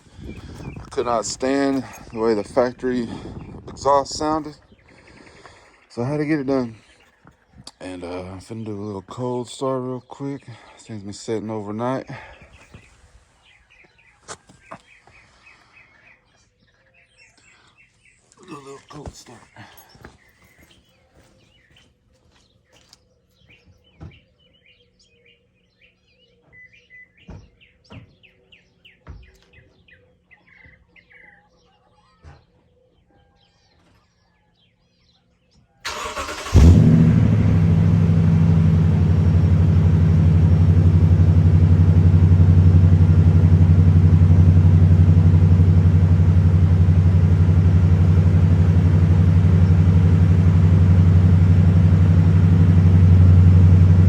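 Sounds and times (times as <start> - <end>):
birds chirping: 0.0 - 54.0
car engine cold start and idle: 35.8 - 54.0.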